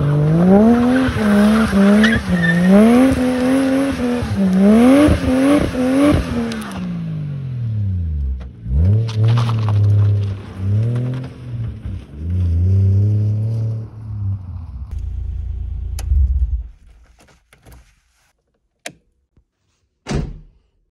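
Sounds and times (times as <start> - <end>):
car engine revving hard: 0.0 - 7.4.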